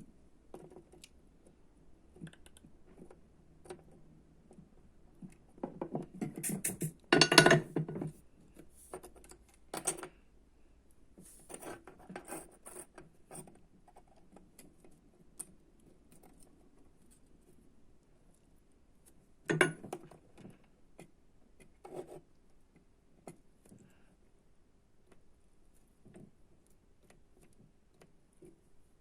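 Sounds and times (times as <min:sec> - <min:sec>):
clatter on workbench: 0:05.6 - 0:08.2, 0:19.5 - 0:20.6.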